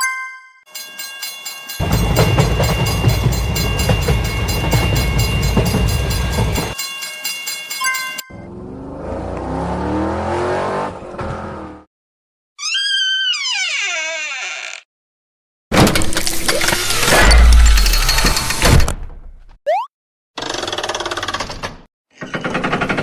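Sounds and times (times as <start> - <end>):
fast repeating ringing: 0.7 - 8.2
train rumbling past: 1.8 - 6.8.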